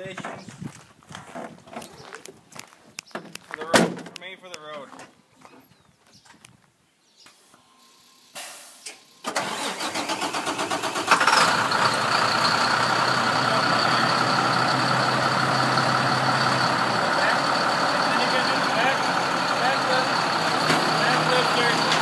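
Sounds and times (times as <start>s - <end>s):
engine starter cranking: 9.2s - 13.4s
engine idling with whine: 10.9s - 22.0s.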